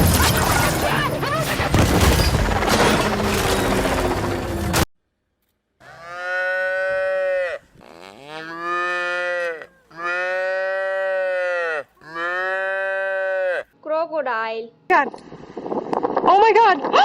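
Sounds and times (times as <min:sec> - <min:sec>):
cow mooing: 0:05.8 - 0:13.7.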